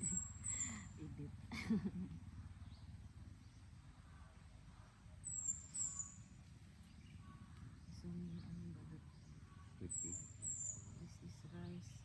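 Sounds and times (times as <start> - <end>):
bird high falling calls: 5.2 - 7.7.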